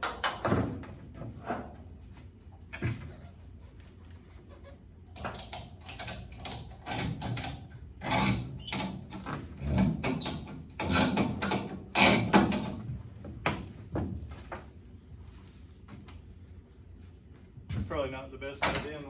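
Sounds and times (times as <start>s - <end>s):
metal parts rattling and scraping: 5.2s - 12.8s.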